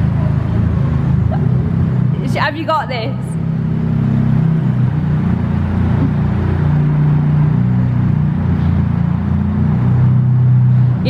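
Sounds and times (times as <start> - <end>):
car engine at low revs: 0.0 - 11.0.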